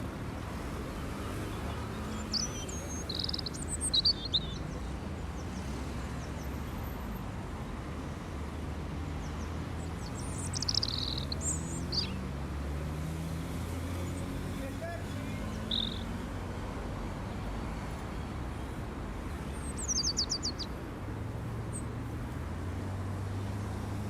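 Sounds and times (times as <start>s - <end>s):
small birds chirping: 1.0s - 7.2s, 8.1s - 16.2s, 18.6s - 20.9s.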